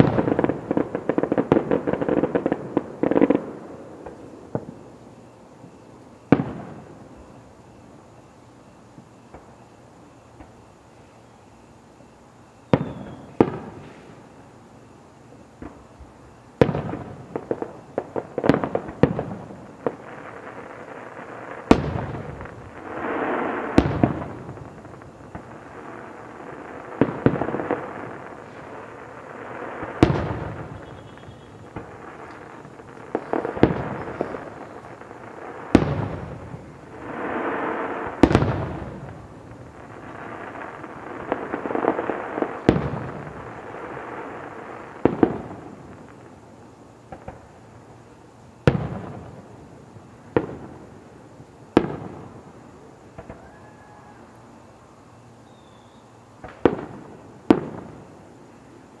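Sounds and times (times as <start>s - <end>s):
fireworks bursting with bangs: 0.0s - 54.3s, 55.4s - 59.0s
fireworks hiss: 0.0s - 59.0s
crackle of small pops: 30.0s - 35.2s.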